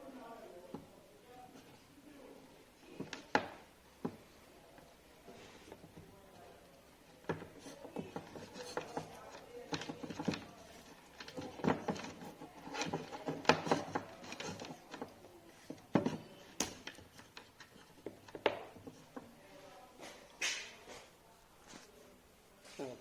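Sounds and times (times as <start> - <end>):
clicks and knocks of tools: 7.2 - 19.3.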